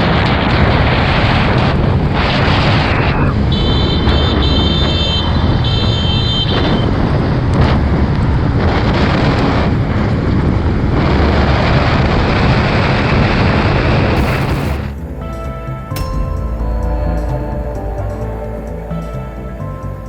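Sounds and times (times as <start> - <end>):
music: 0.0 - 5.0, 14.2 - 20.0
wind rushing over microphone: 0.0 - 20.0
high steady tones: 14.2 - 20.0.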